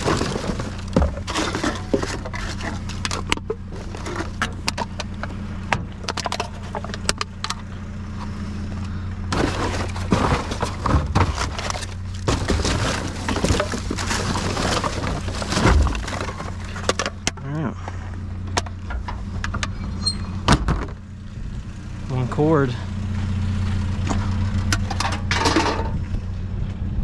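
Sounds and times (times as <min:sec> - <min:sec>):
scraping and rustling: 0:00.0 - 0:05.3, 0:09.3 - 0:17.2
junk clattering: 0:00.0 - 0:08.4, 0:09.2 - 0:21.0, 0:24.0 - 0:26.2
low engine hum: 0:00.0 - 0:27.0.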